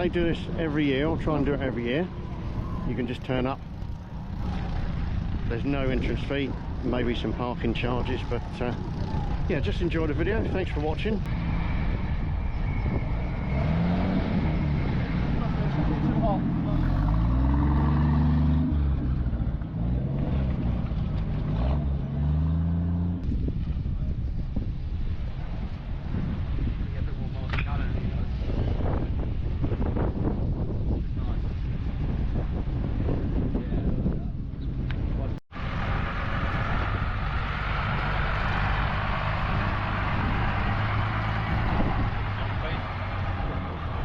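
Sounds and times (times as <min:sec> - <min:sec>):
outdoor background noise: 0:00.0 - 0:44.0.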